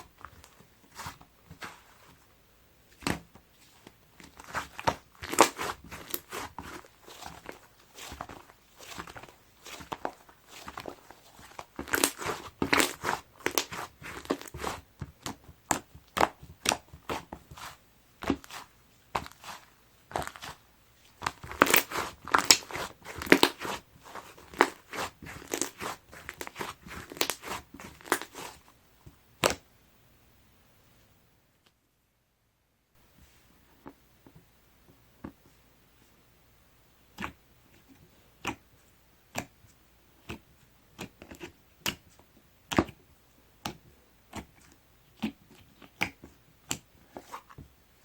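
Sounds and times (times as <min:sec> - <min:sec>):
slime squeezed by hand crackling: 0:04.4 - 0:14.8, 0:21.2 - 0:28.6.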